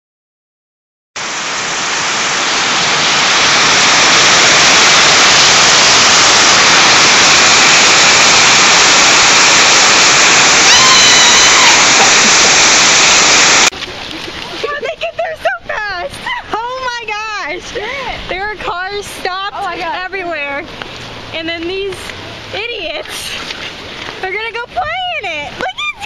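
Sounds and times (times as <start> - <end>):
heavy rain pouring: 1.2 - 15.5.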